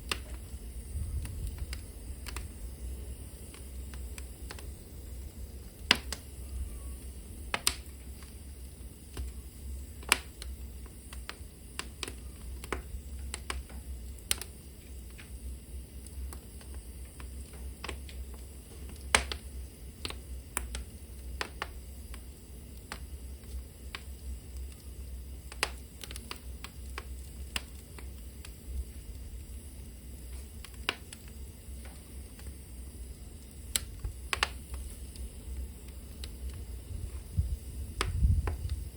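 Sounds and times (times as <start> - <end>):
low rumble of fire: 0.0 - 38.9
wood fire crackling and popping: 0.0 - 38.9.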